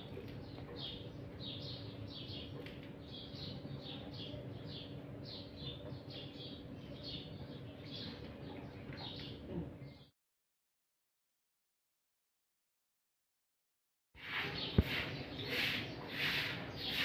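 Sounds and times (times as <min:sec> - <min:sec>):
small birds chirping: 0:00.0 - 0:10.1, 0:14.2 - 0:17.0.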